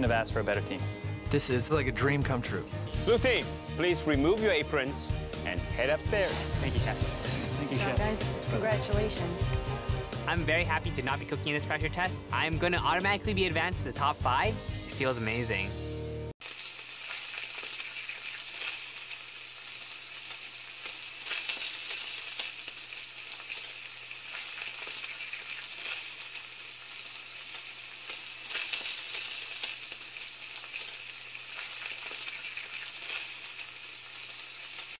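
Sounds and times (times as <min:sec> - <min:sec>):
food sizzling in a frying pan: 0:06.2 - 0:09.3, 0:14.6 - 0:34.9.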